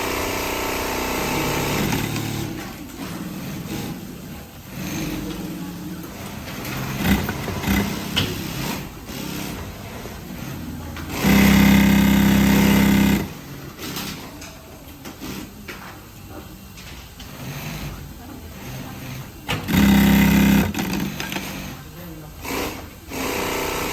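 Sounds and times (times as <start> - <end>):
sewing machine running: 0.0 - 4.0, 4.6 - 14.2, 17.3 - 21.8, 22.4 - 23.9
sewing machine clicks and knocks: 6.5 - 9.3, 19.5 - 21.6.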